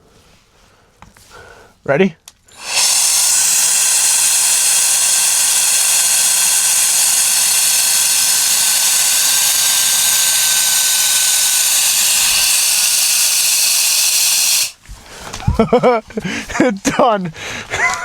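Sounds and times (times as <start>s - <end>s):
air duster rushing with fan whine: 2.5s - 15.1s.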